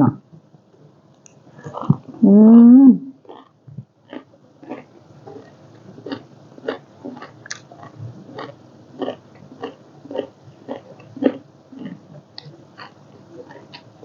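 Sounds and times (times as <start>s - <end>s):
person chewing wetly: 3.2s - 14.0s.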